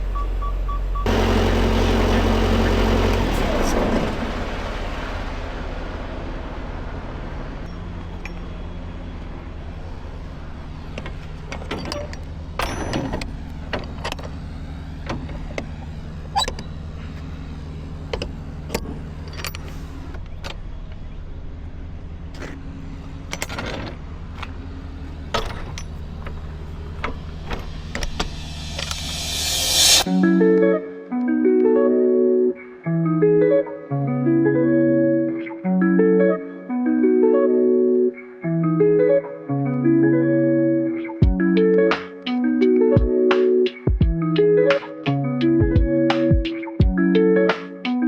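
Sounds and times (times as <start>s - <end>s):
diesel engine idling: 0.0s - 12.6s, 13.2s - 30.0s.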